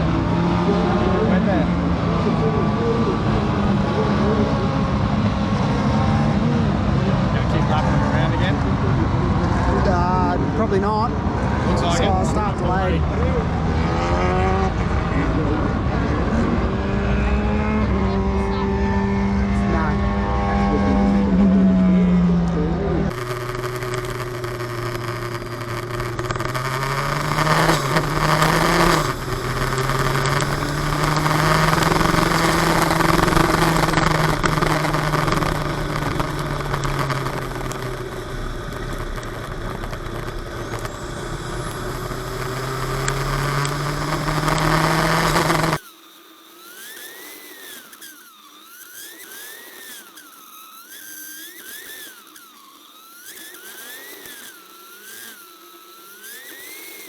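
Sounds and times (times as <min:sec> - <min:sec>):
race car engine under load: 0:00.0 - 0:57.0
wavering whine: 0:00.0 - 0:57.0.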